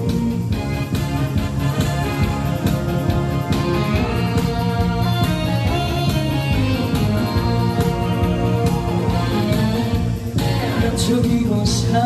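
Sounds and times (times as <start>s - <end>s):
guitar-led backing track: 0.0s - 12.0s
person singing: 7.2s - 12.0s.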